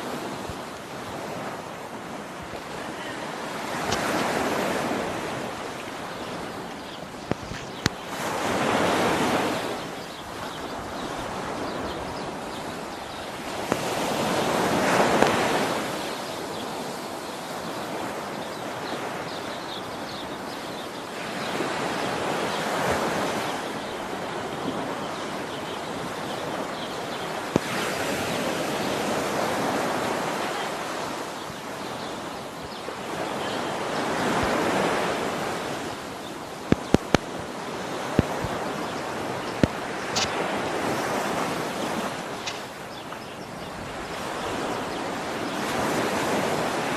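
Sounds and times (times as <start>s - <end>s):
waterfall rushing: 30.5s - 43.6s.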